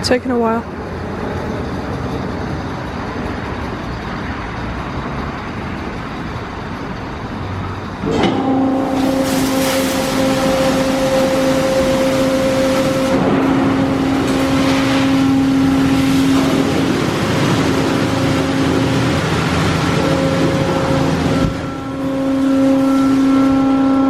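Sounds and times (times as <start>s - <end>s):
car wash rushing noise: 0.6s - 24.0s
motor hum: 7.8s - 24.0s.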